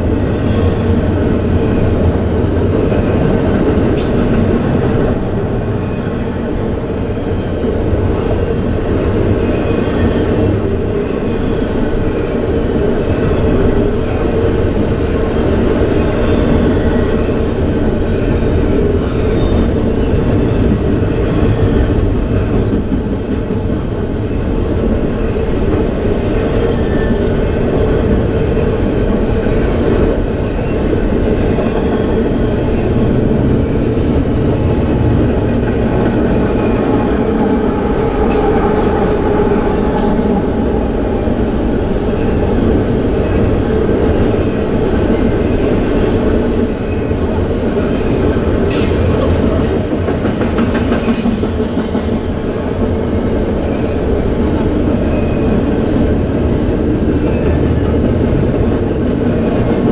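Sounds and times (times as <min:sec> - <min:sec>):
freight train wheels rumbling on rail: 0:00.0 - 0:59.9.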